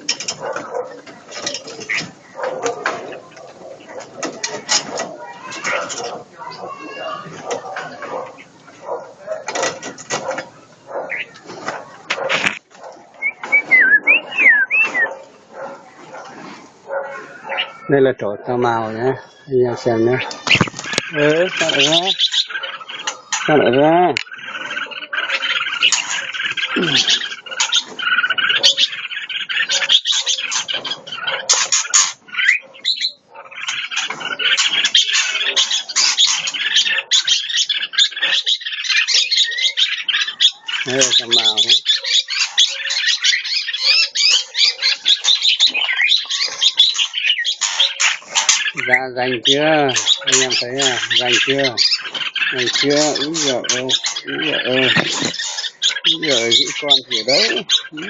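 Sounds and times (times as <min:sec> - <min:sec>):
bulbuls chirping rapidly: 0:00.0 - 0:58.0
songbird singing whistled notes: 0:13.1 - 0:15.2.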